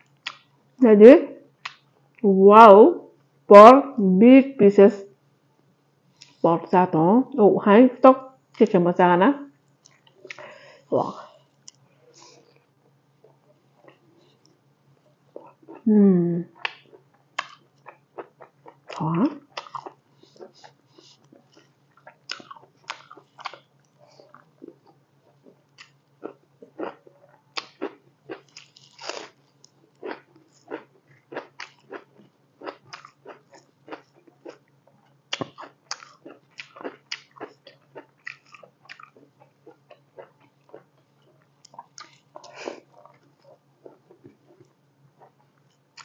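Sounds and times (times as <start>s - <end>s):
faint low hum: 0.0s - 46.0s
wet chewing clicks and smacks: 16.6s - 27.0s, 27.6s - 46.0s.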